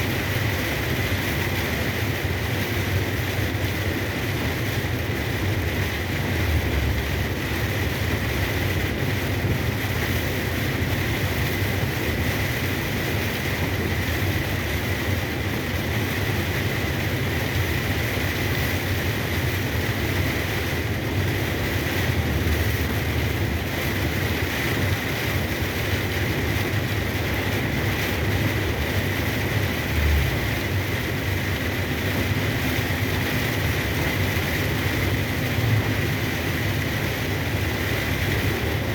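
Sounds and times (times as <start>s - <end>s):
rain and tyre spray hiss: 0.0s - 38.9s
truck engine and road rumble: 0.0s - 38.9s.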